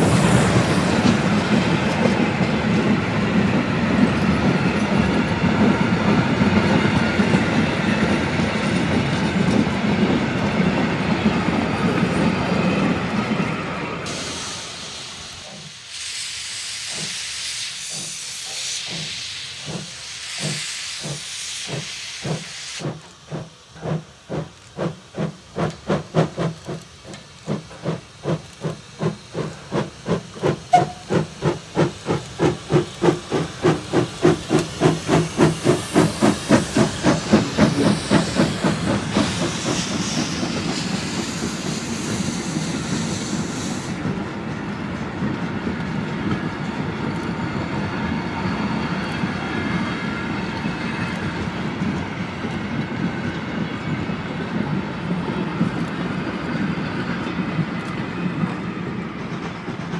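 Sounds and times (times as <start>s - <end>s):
steam hissing: 0.0s - 59.9s
steam locomotive exhaust chuffs: 14.0s - 59.9s.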